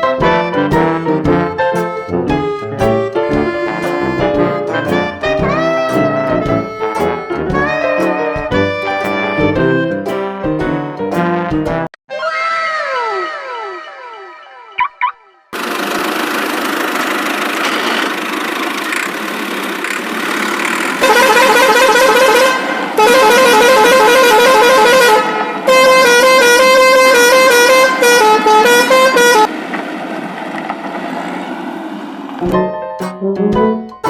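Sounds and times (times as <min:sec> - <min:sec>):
warbling vehicle horn: 0:03.2 - 0:06.8, 0:21.0 - 0:29.5
traffic noise: 0:15.5 - 0:32.7.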